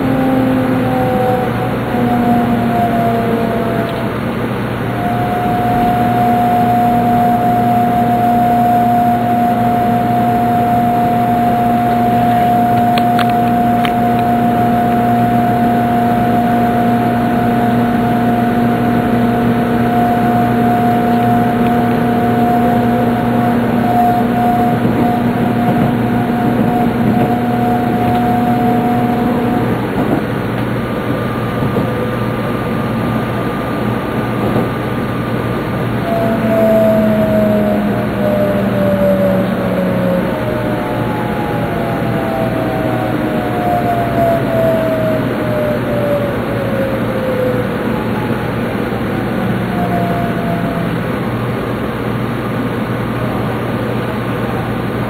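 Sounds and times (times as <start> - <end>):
high whine: 0.0 - 55.0
low whine: 0.0 - 55.0
train running rumble: 0.0 - 55.0
faint high tone: 4.8 - 30.2, 35.9 - 41.5.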